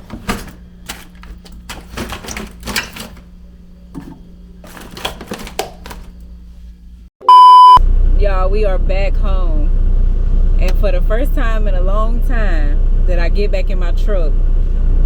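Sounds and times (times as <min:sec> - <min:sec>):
steady low hum: 0:00.0 - 0:07.1, 0:07.8 - 0:15.0
loud electronic beep: 0:07.2 - 0:07.8.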